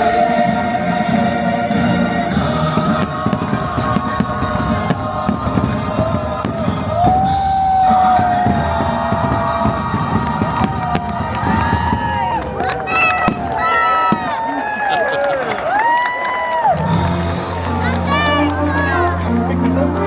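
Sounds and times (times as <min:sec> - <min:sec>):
music soundtrack: 0:00.0 - 0:12.6, 0:16.6 - 0:20.0
fireworks bangs and pops: 0:02.3 - 0:14.8.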